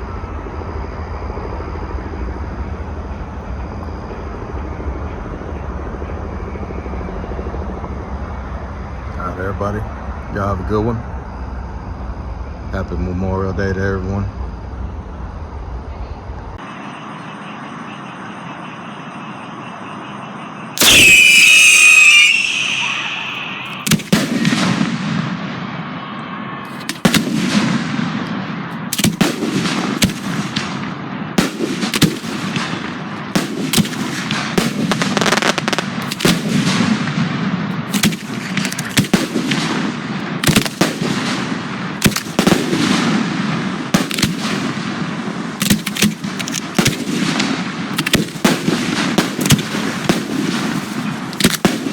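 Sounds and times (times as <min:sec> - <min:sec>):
low hum: 0:00.0 - 0:21.0
whistling firework shot: 0:14.3 - 0:51.9
firework bangs: 0:20.8 - 0:26.0, 0:26.7 - 0:51.9.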